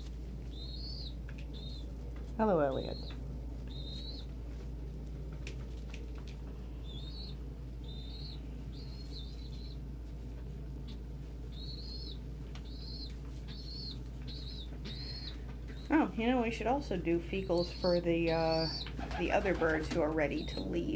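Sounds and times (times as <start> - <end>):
steady low hum: 0.0 - 20.9
high bird peeps: 0.4 - 1.9, 2.7 - 4.4, 6.8 - 9.8, 10.9 - 16.0, 17.4 - 20.9.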